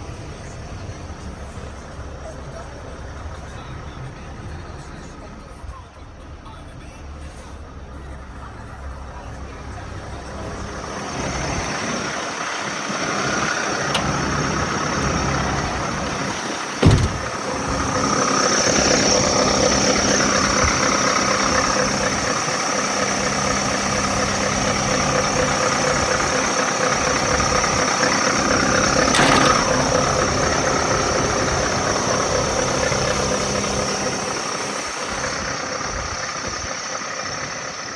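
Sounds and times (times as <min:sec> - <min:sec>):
diesel engine idling: 0:00.0 - 0:37.9
loud thump: 0:16.8 - 0:17.4, 0:29.1 - 0:30.0.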